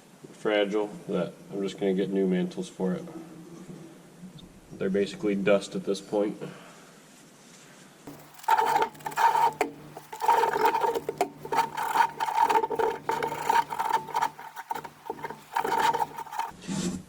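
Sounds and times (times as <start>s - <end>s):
scrubbing metal: 8.1s - 16.6s.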